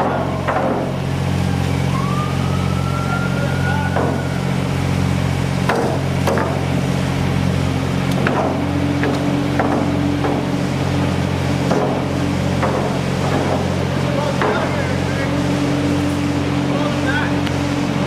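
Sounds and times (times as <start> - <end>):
engine running: 0.0 - 18.0
low hum: 0.0 - 18.0
rising whine: 0.9 - 18.0
sharp knocks: 3.9 - 4.3, 5.6 - 6.6, 8.1 - 10.5, 11.7 - 13.7.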